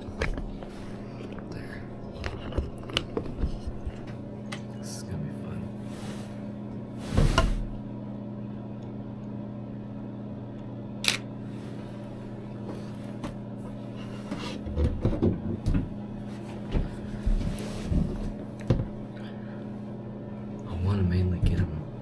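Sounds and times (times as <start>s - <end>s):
handling noises: 0.0s - 4.7s
heater humming: 0.0s - 22.0s
sharp click: 11.0s - 11.2s.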